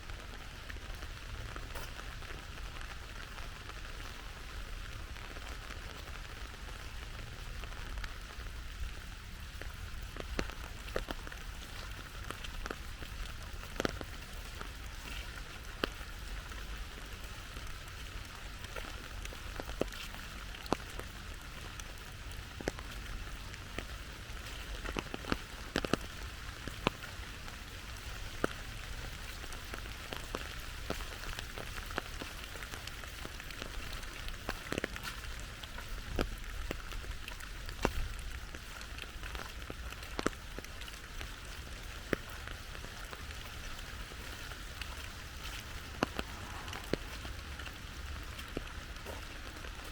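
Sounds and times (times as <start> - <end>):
rain falling: 0.0 - 49.9
raindrops ticking: 0.0 - 49.9
low rumble: 42.9 - 49.8.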